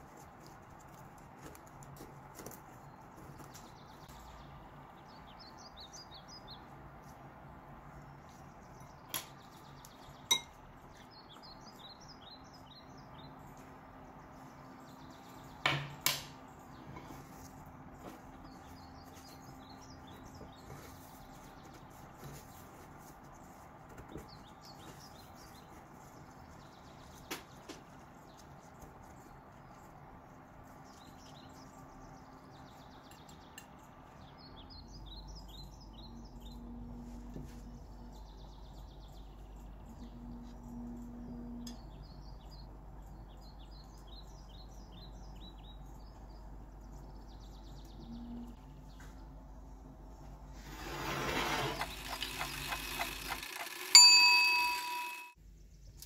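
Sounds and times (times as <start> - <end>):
birds chirping: 7.8 - 56.0
rustling: 17.0 - 31.2
low steady hum: 27.8 - 50.6.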